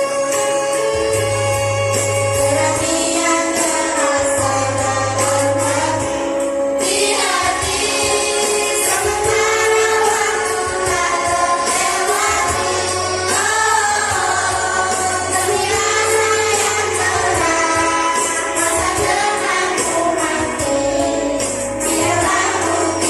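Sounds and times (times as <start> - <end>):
instrumental accompaniment: 0.0 - 23.0
children's choir singing: 2.5 - 23.0.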